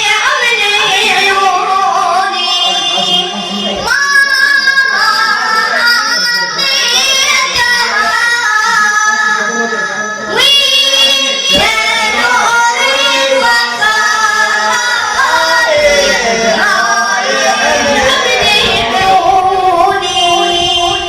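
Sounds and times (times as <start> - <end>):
solo voice chanting a lament: 8.7 - 21.0.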